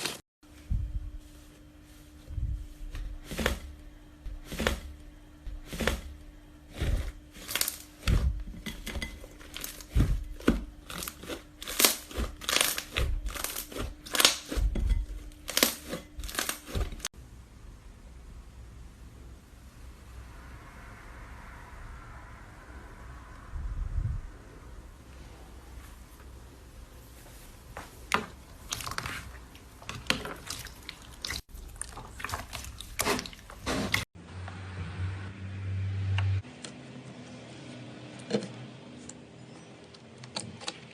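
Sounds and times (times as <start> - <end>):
crunchy slime crackling and popping: 6.7 - 8.2, 9.4 - 14.7, 15.3 - 17.0.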